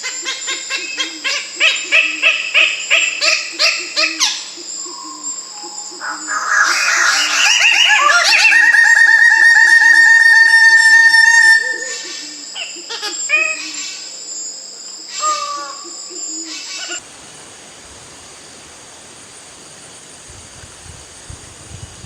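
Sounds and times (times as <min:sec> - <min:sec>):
bird whistling notes: 0:04.2 - 0:12.8
fast bird trill: 0:06.0 - 0:12.0.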